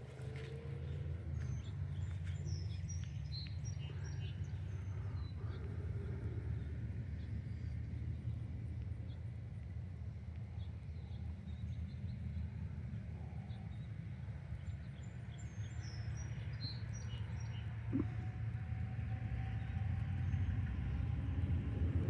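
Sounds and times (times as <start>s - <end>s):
small birds chirping: 0.9s - 6.7s
low rumble: 17.8s - 22.0s.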